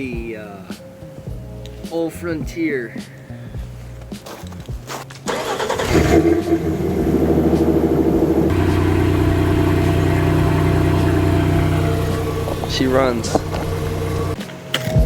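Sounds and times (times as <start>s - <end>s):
engine cranking and idling: 5.3s - 14.4s.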